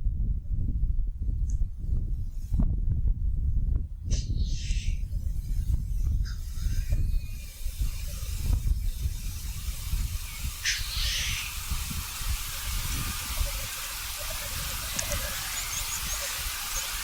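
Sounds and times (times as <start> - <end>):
wind rumble on microphone: 0.0 - 17.0
grouse hissing sneeze call: 10.6 - 11.6
grouse bubbling cooing: 13.4 - 16.9.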